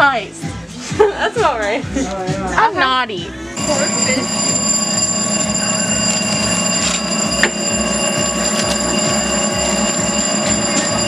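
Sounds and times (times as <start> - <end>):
busy background din: 1.6 - 11.0
high electronic ringing tone: 3.6 - 11.0.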